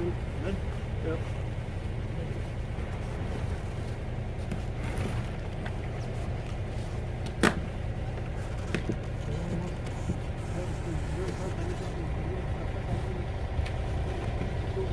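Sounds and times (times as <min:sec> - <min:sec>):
diesel engine humming: 0:00.0 - 0:14.9.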